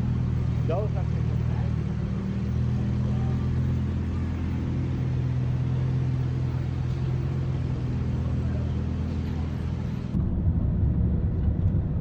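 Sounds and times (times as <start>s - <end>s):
vehicle engine drone: 0.0s - 12.0s.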